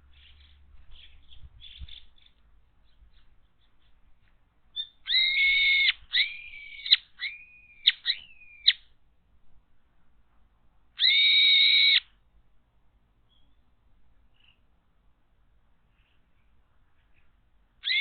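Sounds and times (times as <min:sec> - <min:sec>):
shrill harsh bird calls: 0:00.0 - 0:04.0, 0:04.7 - 0:08.9, 0:11.0 - 0:12.2, 0:14.3 - 0:14.7, 0:15.9 - 0:18.0.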